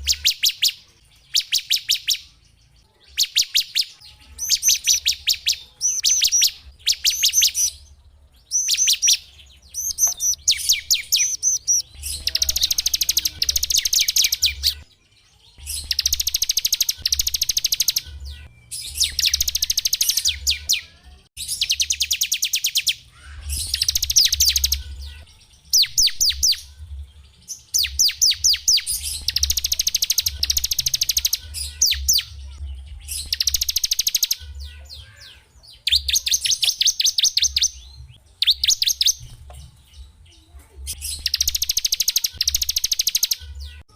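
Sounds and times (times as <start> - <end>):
songbird trilling: 3.0 - 14.8, 15.6 - 25.1, 27.7 - 39.2.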